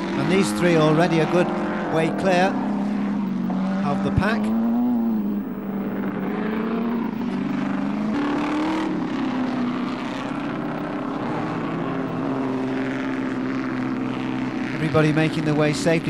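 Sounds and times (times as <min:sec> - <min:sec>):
racing car engines passing: 0:00.0 - 0:16.0.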